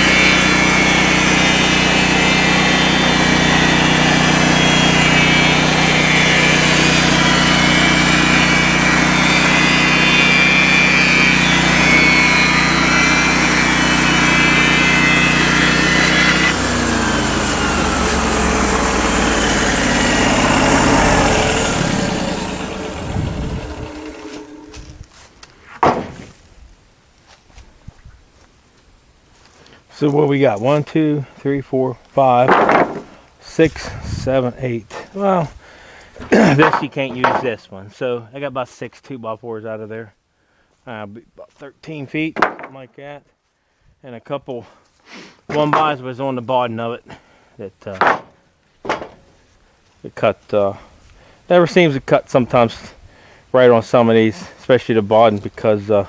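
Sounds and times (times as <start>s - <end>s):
engine spinning down: 0.0s - 25.0s
sawmill engine running: 0.0s - 25.1s.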